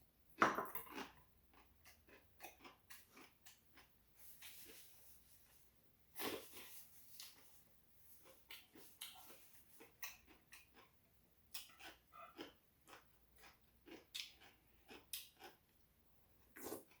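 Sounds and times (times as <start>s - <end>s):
chewing and lip smacks: 11.5s - 15.6s.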